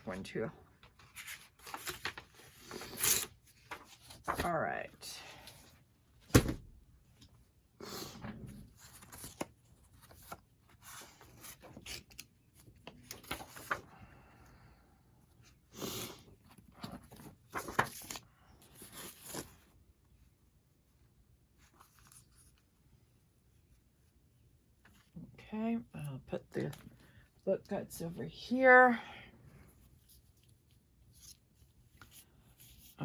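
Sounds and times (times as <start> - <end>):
paper rustling: 0.8 - 4.6, 8.6 - 14.0, 16.5 - 19.8, 21.6 - 22.6, 29.7 - 33.0
book cover tearing: 1.1 - 4.3.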